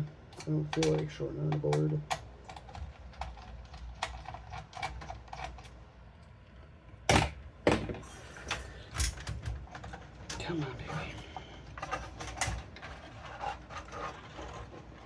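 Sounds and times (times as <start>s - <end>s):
computer parts clicking and tapping: 0.3s - 5.8s.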